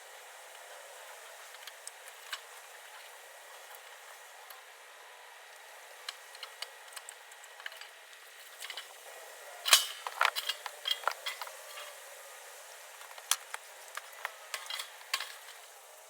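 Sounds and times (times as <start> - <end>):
wood fire crackling: 0.0 - 4.8, 5.4 - 16.0
faint hiss: 0.0 - 16.0.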